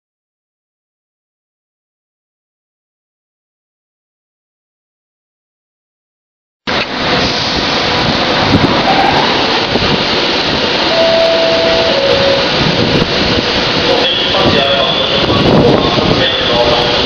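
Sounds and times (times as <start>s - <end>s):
train rushing past: 6.7s - 17.0s
wind on microphone: 7.5s - 17.0s.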